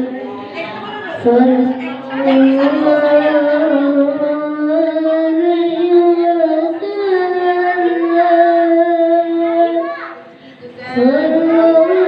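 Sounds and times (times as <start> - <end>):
children singing: 0.0 - 12.0.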